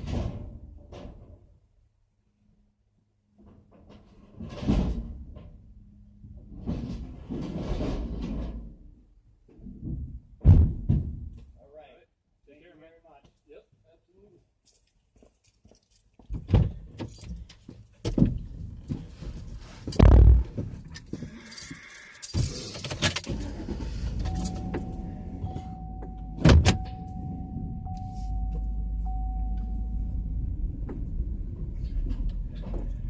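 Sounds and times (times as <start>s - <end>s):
keys jangling: 20.9s - 23.5s
car doors shutting: 22.4s - 33.0s
low engine rumble: 23.2s - 33.0s
electronic chime tone: 24.3s - 30.6s.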